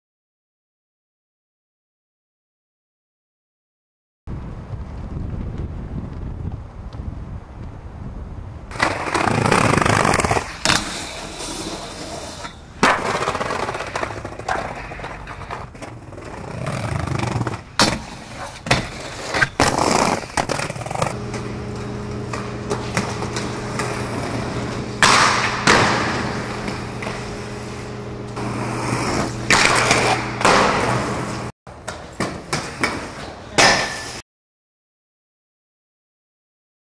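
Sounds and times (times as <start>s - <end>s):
skate wheels rolling on wet pavement: 8.7s - 31.5s
steady low hum: 20.0s - 31.5s.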